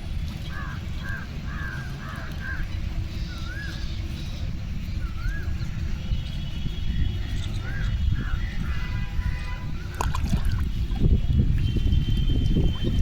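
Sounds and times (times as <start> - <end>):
birds calling: 0.0 - 10.9
steady low rumble: 0.0 - 13.0
wavy whistled bird call: 0.4 - 10.0.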